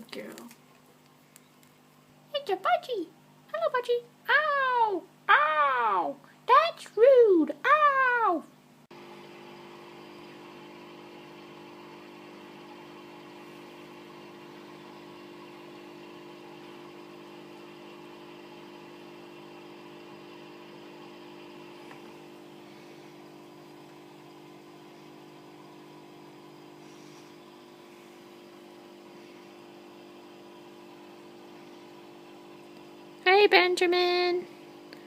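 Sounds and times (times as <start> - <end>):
electric motor hum: 8.9 - 35.0.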